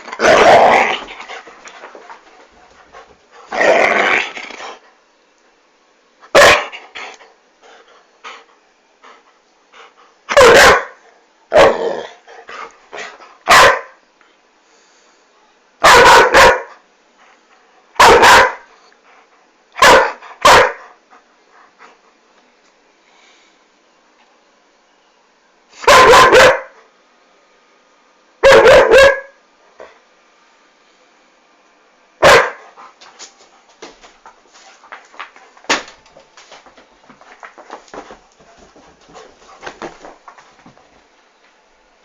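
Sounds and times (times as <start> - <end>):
dog barking loudly: 6.3 - 6.8, 10.3 - 11.8, 13.4 - 14.0, 15.8 - 16.8, 18.0 - 18.7, 19.8 - 20.8, 25.8 - 26.8, 28.4 - 29.4, 32.2 - 32.6
quiet rustling: 32.9 - 42.0.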